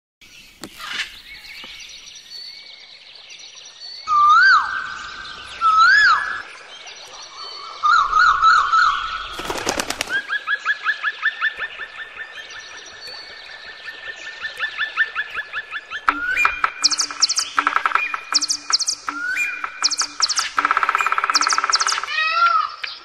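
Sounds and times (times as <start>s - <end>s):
songbirds whistling and trilling: 0.2s - 23.0s
bird rising chirps: 14.4s - 23.0s
rapid clicks: 16.1s - 22.1s.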